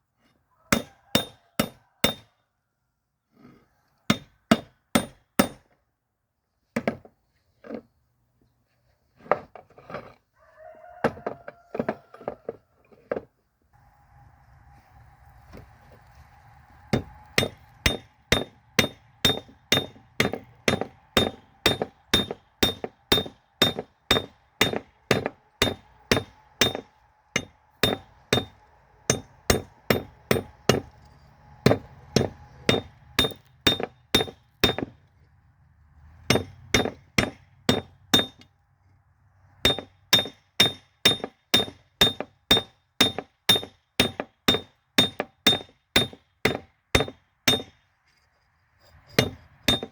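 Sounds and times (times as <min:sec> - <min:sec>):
hammer ringing on anvil: 0:00.8 - 0:02.3, 0:16.9 - 0:30.9, 0:31.6 - 0:34.9, 0:36.3 - 0:38.4, 0:39.7 - 0:47.8, 0:49.1 - 0:49.9.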